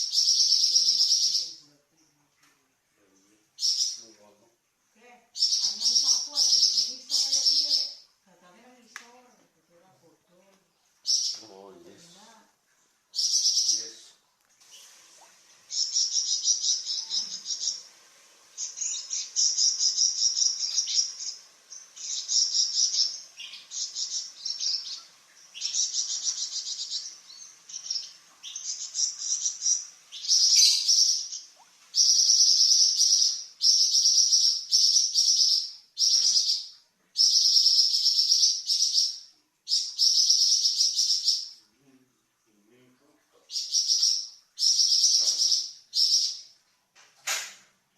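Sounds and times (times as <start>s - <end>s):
songbird trilling: 0.0s - 1.6s, 3.6s - 4.0s, 5.4s - 8.0s, 11.0s - 11.6s, 13.2s - 14.0s, 15.7s - 17.9s, 18.6s - 41.5s, 43.5s - 46.4s.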